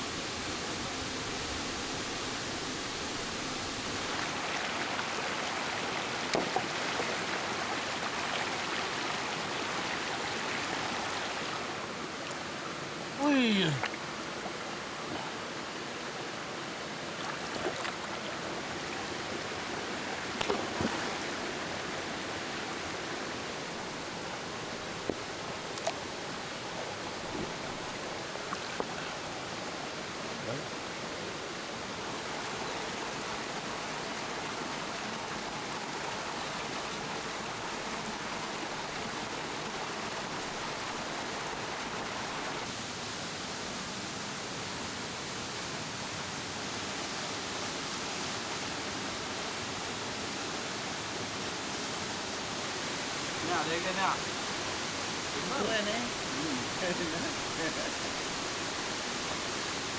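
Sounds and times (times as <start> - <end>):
rocky stream flowing: 0.0 - 59.9.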